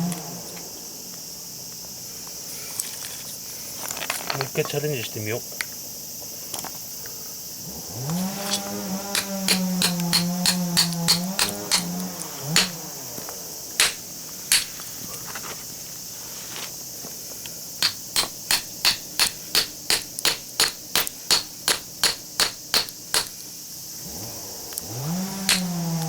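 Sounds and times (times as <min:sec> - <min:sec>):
hammer striking steel: 0:09.1 - 0:12.8, 0:13.8 - 0:14.7, 0:17.8 - 0:23.4, 0:25.5 - 0:25.8.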